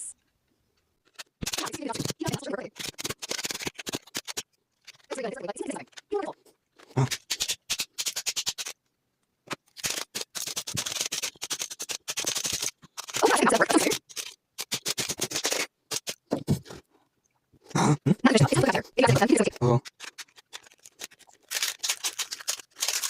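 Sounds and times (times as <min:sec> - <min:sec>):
plastic parts clicking: 0:01.0 - 0:05.2, 0:19.2 - 0:23.0.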